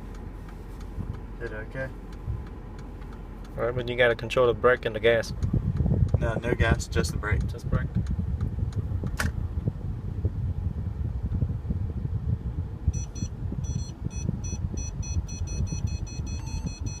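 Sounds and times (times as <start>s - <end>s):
low cabin rumble: 0.0s - 17.0s
parking sensor warning beeps: 12.9s - 17.0s.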